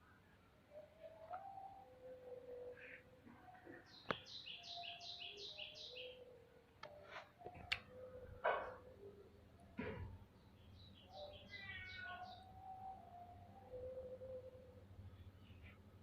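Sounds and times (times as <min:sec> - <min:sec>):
small bird chirping: 0:10.4 - 0:12.6.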